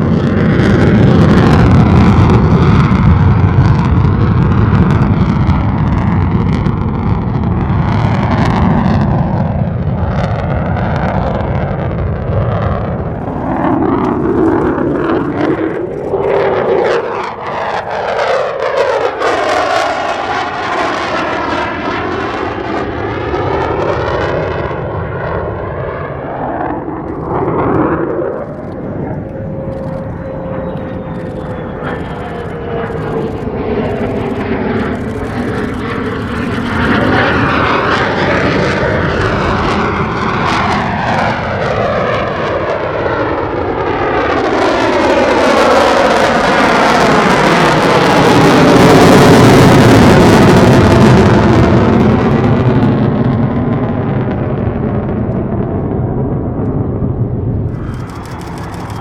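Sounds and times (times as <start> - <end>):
jet thundering past: 0.0 - 59.0
faint falling whine: 25.3 - 38.1, 55.0 - 59.0.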